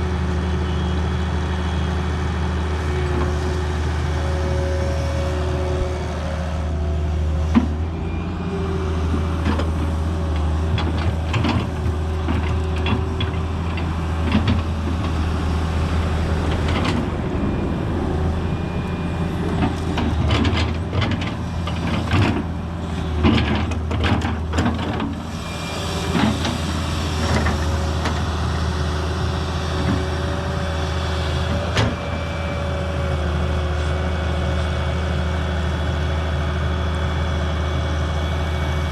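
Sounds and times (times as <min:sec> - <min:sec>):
diesel engine running: 0:00.0 - 0:38.9
hydraulic whine: 0:00.4 - 0:10.5, 0:25.1 - 0:33.5.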